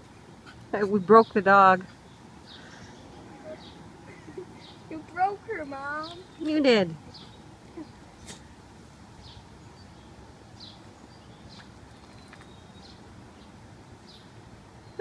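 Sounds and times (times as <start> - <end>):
small bird chirping: 1.2 - 5.0, 9.2 - 15.0.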